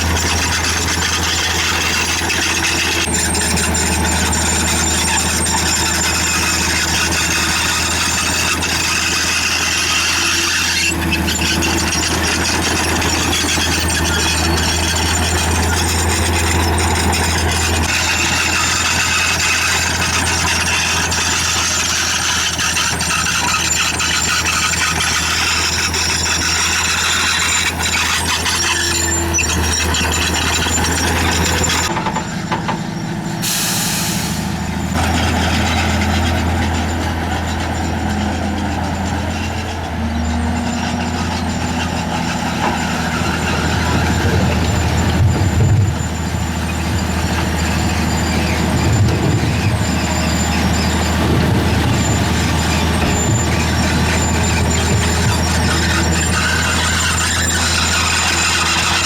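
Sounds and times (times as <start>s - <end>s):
diesel earthmoving machinery drone: 0.0s - 59.0s
short hiss of air: 33.4s - 34.6s.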